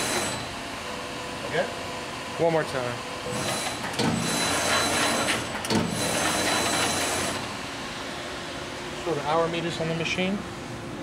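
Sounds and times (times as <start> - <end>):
punch press mechanical whir: 0.0 - 2.4, 3.0 - 8.4
sharp mechanical knocks: 3.3 - 7.4.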